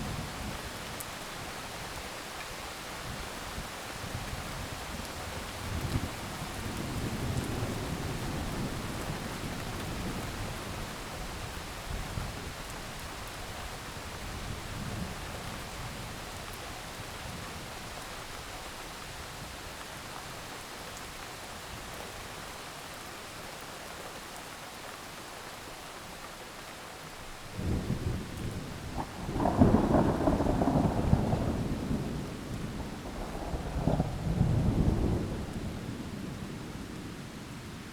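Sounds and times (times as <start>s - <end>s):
heavy rain falling: 0.0s - 37.9s
thunder rumbling: 27.6s - 36.3s.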